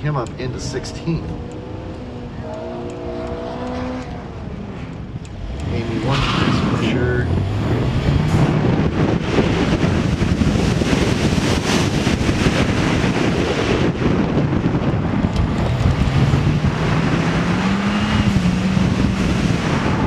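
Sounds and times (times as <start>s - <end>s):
car engine running under load: 0.0s - 20.0s
wind buffeting microphone: 0.0s - 20.0s.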